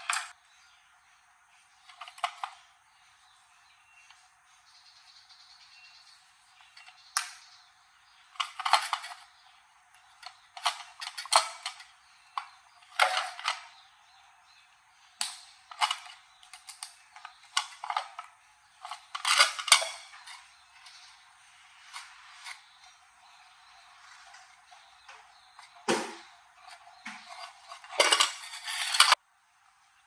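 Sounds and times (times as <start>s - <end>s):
sharp clicks and knocks: 24.2s - 29.2s.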